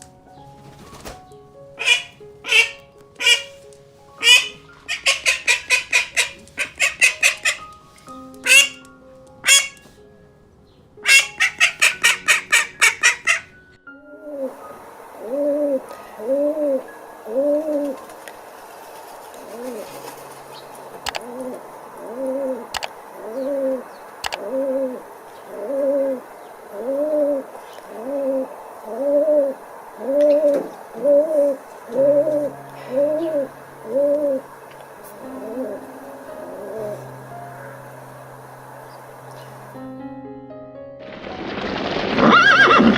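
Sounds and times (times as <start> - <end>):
pigeon cooing: 1.8 - 3.6, 4.2 - 7.7, 8.4 - 8.8, 9.4 - 9.9, 11.0 - 13.5, 14.2 - 18.1, 19.3 - 37.9
sharp clicks: 21.0 - 21.3, 22.7 - 23.0, 24.2 - 24.4.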